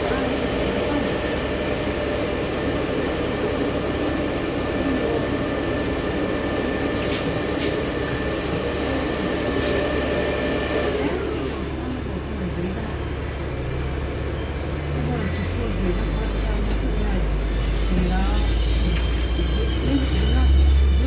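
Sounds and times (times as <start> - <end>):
bus drivetrain hum: 0.0 - 21.0
hiss of air: 7.0 - 9.6.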